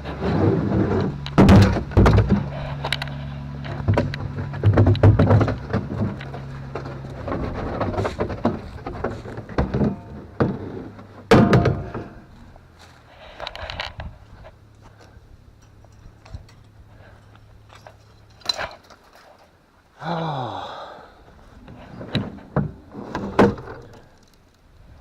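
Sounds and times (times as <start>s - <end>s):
water trough knocks and thumps: 1.3s - 2.5s, 3.8s - 12.3s
short falling groan: 20.0s - 21.3s.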